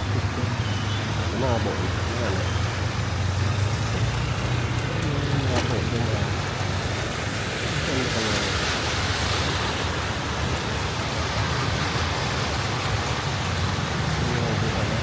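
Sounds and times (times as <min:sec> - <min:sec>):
rain on a wet street: 0:00.0 - 0:15.0.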